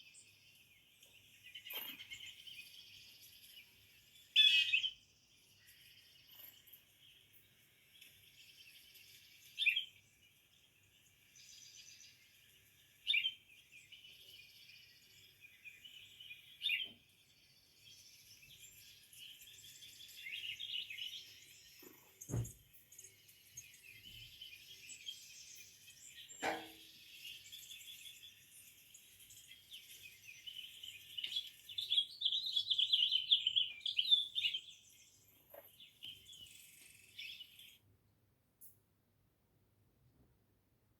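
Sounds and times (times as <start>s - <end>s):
small birds chirping: 0.0s - 38.8s
thump: 22.3s - 22.6s.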